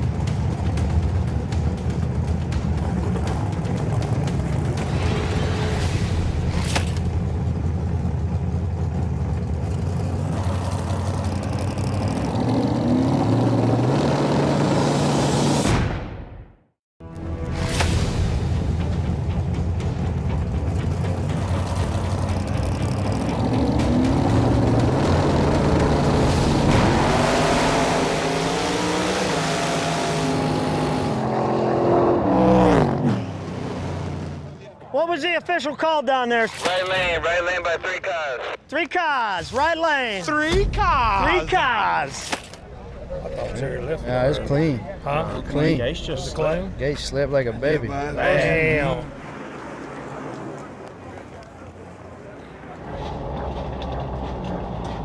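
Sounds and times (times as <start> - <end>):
drag racing car engines revving: 7.0 - 15.6, 20.7 - 34.6, 48.8 - 55.0.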